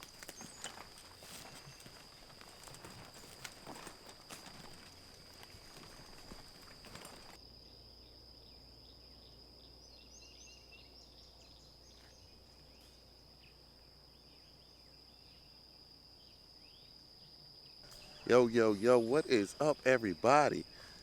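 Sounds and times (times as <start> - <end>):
rustling clatter: 0.0 - 7.4.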